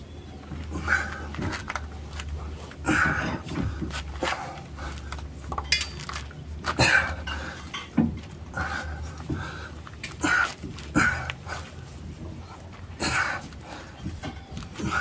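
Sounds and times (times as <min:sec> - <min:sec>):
person breathing hard: 0:02.8 - 0:05.3, 0:08.5 - 0:11.8
metal tools clinking and knocking: 0:05.5 - 0:06.4, 0:07.3 - 0:08.3.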